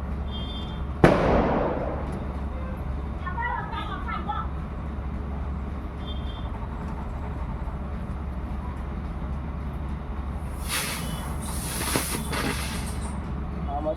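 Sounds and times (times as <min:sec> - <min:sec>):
steady low rumble: 0:00.0 - 0:11.8
firecracker hissing: 0:10.5 - 0:13.2.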